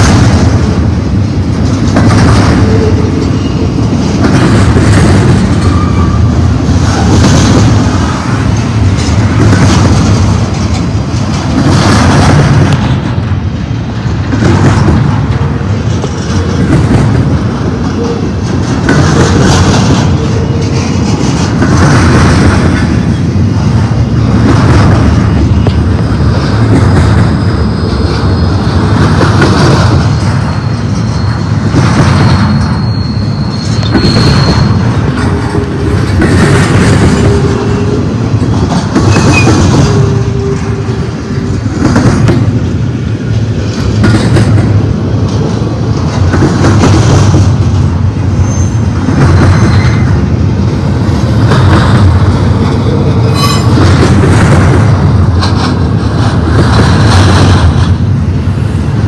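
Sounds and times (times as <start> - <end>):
train wheels clattering over rails: 0.0 - 59.0
wheel squeals: 30.1 - 35.9, 39.0 - 41.0, 53.2 - 53.8.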